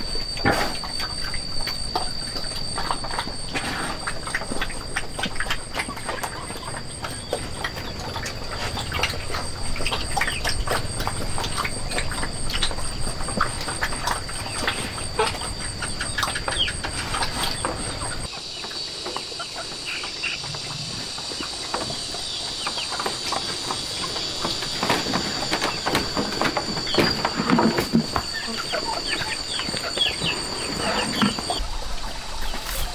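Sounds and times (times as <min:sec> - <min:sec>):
high-pitched insect drone: 0:00.0 - 0:31.7
fowl clucking and chirping: 0:05.8 - 0:31.6.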